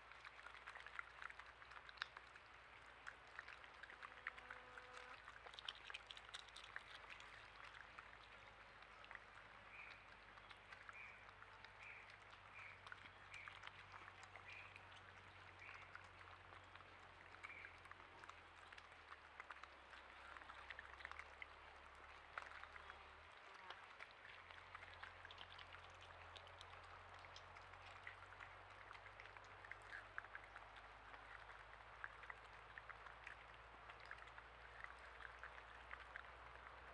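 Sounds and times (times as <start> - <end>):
rain dripping: 0.0 - 36.9.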